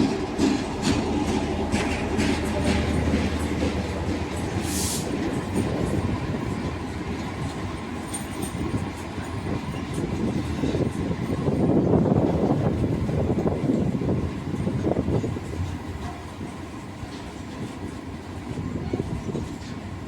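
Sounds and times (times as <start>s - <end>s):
train wheels clacking on rails: 0.0s - 20.0s
short hiss: 4.6s - 5.1s.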